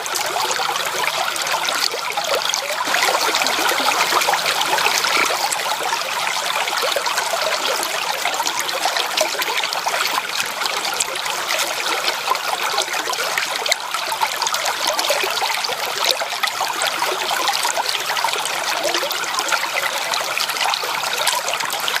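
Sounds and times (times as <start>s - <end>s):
stream water running: 0.0s - 22.0s.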